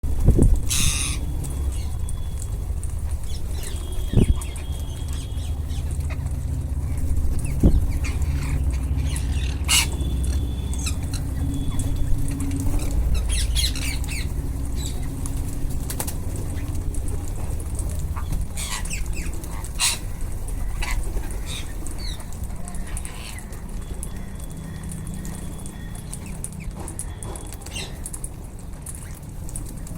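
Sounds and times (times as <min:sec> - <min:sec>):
steady low rumble: 0:00.0 - 0:27.2
parakeets squawking: 0:00.6 - 0:26.4
parakeet whistles: 0:00.7 - 0:02.4.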